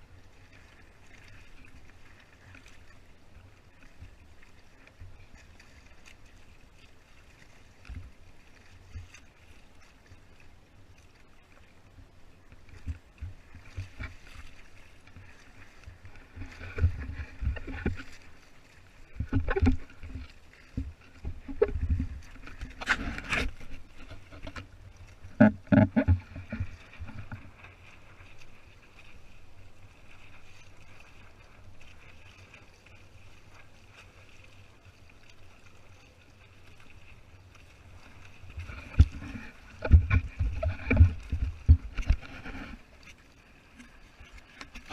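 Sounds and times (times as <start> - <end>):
water slapping against kayak hull: 12.6 - 34.6, 37.0 - 43.1
knocks and splashes: 19.1 - 27.8, 38.5 - 42.8.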